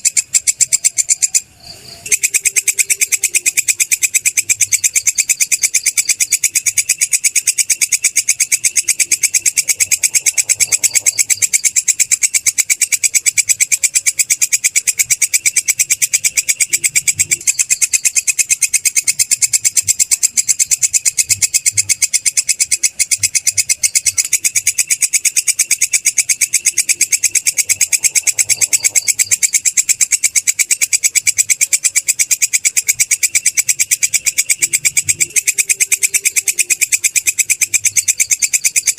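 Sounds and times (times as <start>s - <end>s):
katydid stridulating: 0.0s - 38.9s.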